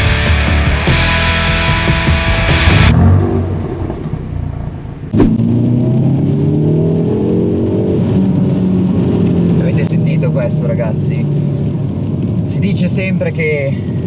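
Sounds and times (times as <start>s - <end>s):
rock music: 0.0s - 5.2s
car engine accelerating: 0.0s - 12.6s
sharp crack: 2.2s - 5.5s.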